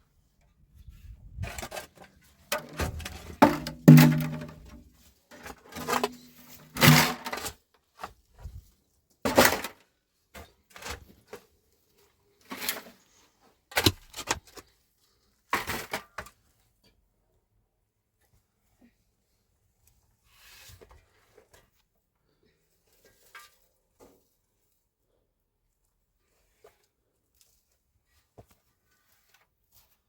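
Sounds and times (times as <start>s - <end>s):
objects knocking and clattering: 2.5s - 4.8s, 5.7s - 7.4s.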